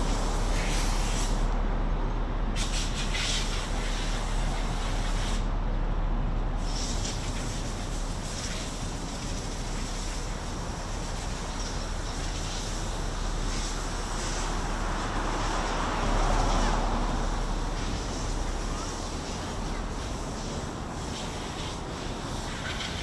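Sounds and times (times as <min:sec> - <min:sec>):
city traffic noise: 0:00.0 - 0:23.0
vehicle passing: 0:12.1 - 0:23.0.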